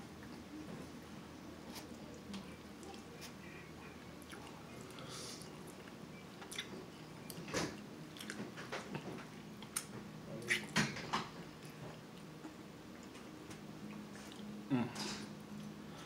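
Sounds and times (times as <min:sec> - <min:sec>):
person chewing with wet smacks: 0:01.6 - 0:10.8, 0:11.4 - 0:15.8.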